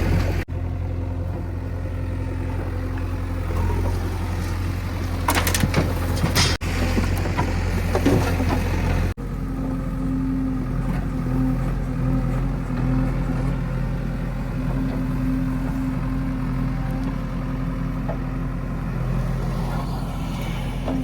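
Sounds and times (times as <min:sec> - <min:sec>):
heavy machinery diesel engine: 0:00.0 - 0:21.0
sharp knocks and clatter: 0:05.2 - 0:08.7.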